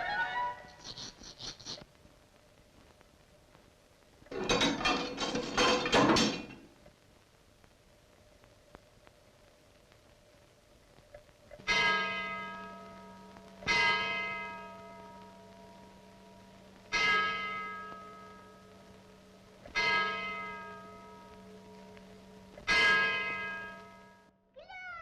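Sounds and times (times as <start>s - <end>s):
steady low hum: 6.5s - 24.3s
large bell tolling: 11.7s - 24.3s.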